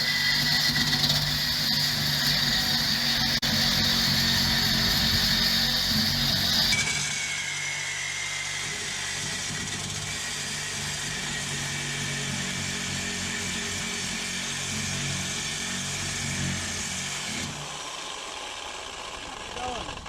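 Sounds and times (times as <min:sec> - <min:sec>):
reciprocating saw cutting metal pipe: 0:00.0 - 0:20.0.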